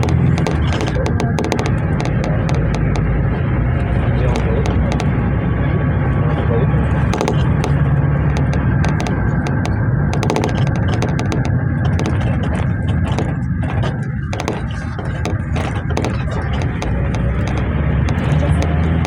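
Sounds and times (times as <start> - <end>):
engine and road rumble: 0.0 - 19.0
rattling clicks of cabin fittings: 6.2 - 19.0.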